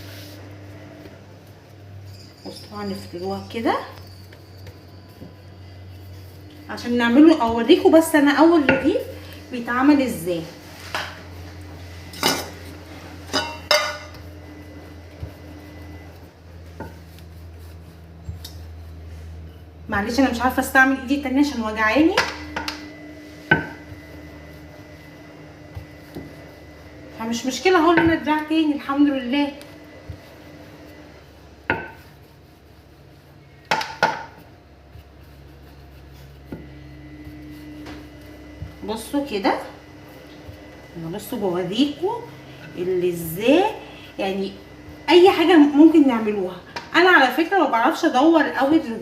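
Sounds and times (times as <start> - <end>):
steady low hum: 0.0 - 49.0
dishes knocking on counter: 31.7 - 32.0, 33.7 - 34.4.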